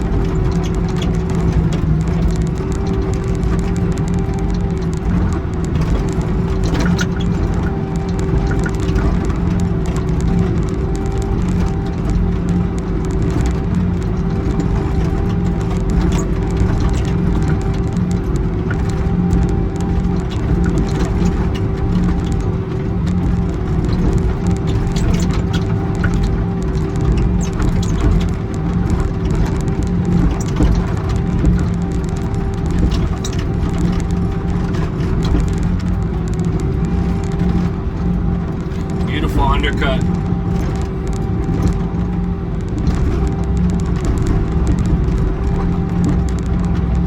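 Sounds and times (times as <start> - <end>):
diesel engine running: 33.4 - 47.0
excavator diesel engine running: 37.0 - 40.5.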